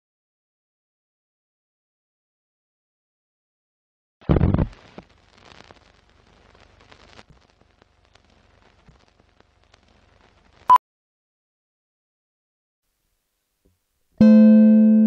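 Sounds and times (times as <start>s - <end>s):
faint crackling with clicks: 4.2s - 10.8s.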